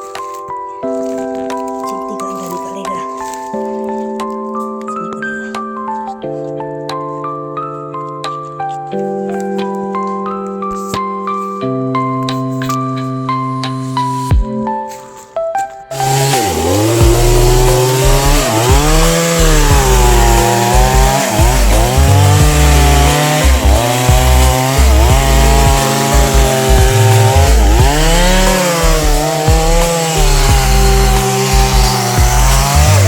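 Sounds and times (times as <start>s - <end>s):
chainsaw cutting wood: 15.9s - 33.0s.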